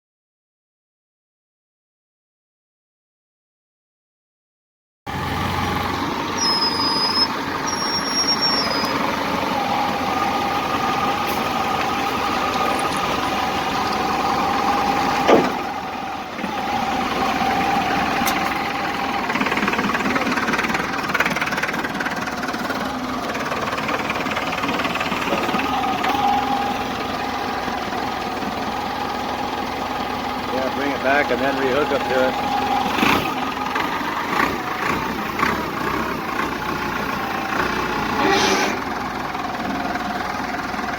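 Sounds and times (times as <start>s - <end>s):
tractor engine running: 5.1s - 40.9s
sharp knock: 15.3s - 15.6s.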